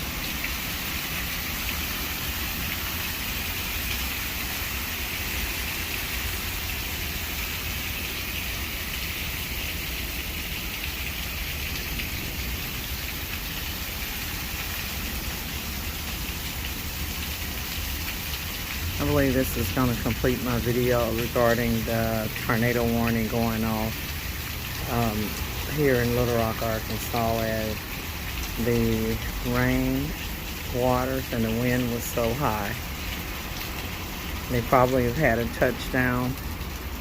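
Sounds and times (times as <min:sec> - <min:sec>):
rain splashing on wet surfaces: 0:00.0 - 0:37.0.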